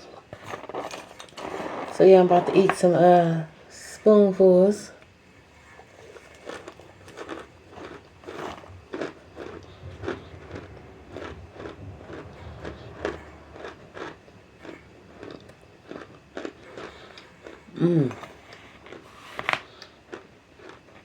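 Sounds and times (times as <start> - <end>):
person chewing crunchy chunks: 5.3 - 21.0.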